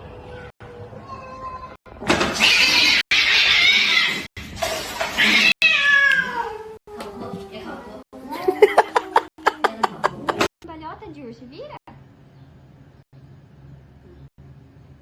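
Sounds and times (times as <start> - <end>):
cat yowling: 5.2 - 6.8.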